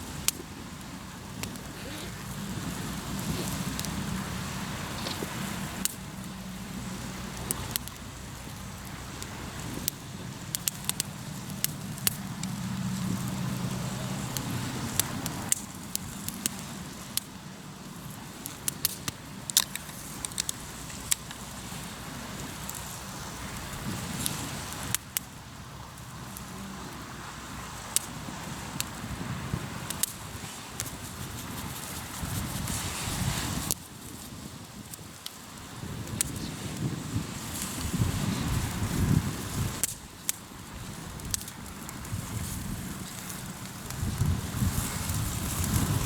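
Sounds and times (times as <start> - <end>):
campfire crackling and popping: 0.0 - 46.0
low engine-like hum: 0.5 - 16.4.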